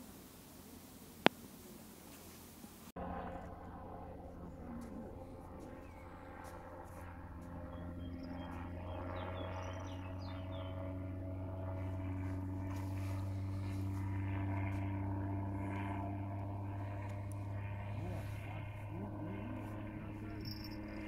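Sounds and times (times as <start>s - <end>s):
motor engine droning: 3.0s - 21.0s
bird chirps: 7.6s - 10.9s.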